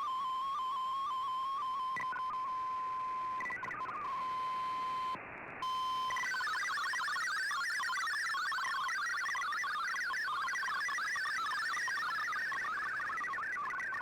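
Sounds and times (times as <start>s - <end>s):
warbling multi-tone data signal: 5.7s - 14.0s.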